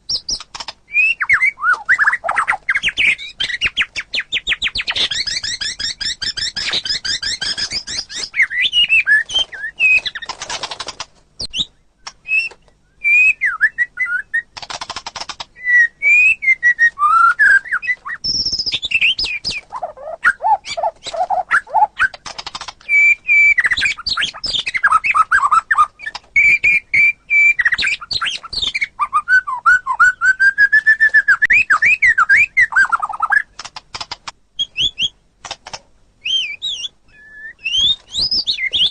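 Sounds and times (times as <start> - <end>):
songbird singing varied song: 0.0 - 10.4, 11.4 - 14.6, 15.2 - 33.6, 34.6 - 35.2, 36.2 - 38.9.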